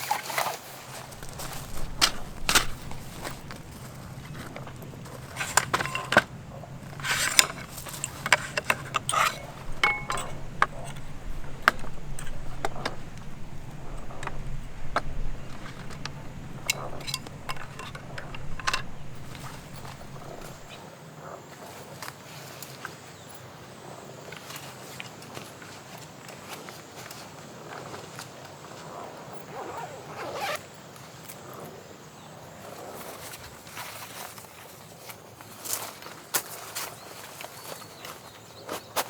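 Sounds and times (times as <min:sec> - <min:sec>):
objects clinking and knocking: 0:00.9 - 0:20.7
steady low hum: 0:00.9 - 0:20.8.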